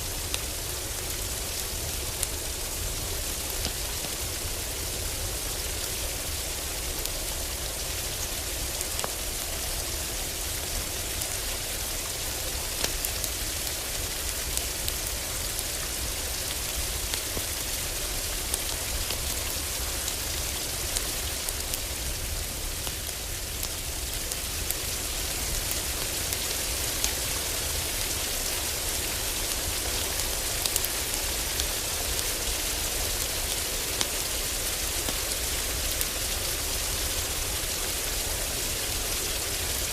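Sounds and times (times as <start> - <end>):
heavy rain on a roof: 0.0 - 39.9
wood fire crackling: 0.1 - 39.9.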